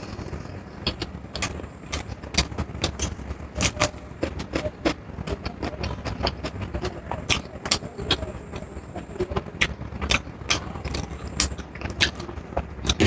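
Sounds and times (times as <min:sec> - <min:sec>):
low background rumble: 0:00.0 - 0:13.0
chewing with mouth clicks: 0:09.3 - 0:13.0.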